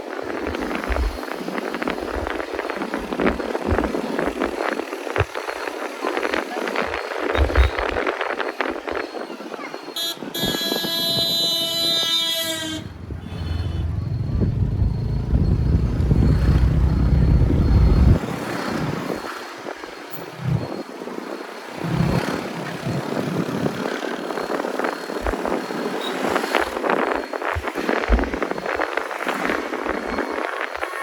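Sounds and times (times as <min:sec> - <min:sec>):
vehicle horn: 0:10.0 - 0:14.2
low rumble of traffic: 0:11.9 - 0:24.4.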